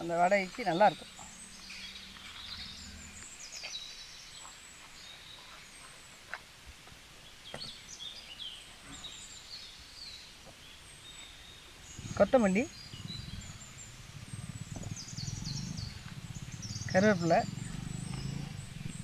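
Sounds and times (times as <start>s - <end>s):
low steady hum: 0.0s - 10.0s
birds chirping faintly: 0.0s - 19.0s.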